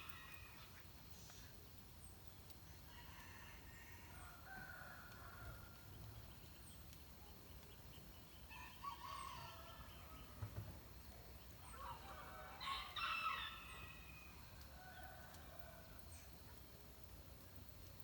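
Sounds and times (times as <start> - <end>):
faint rooster crowing: 2.8 - 5.9, 8.5 - 10.6, 11.7 - 16.3.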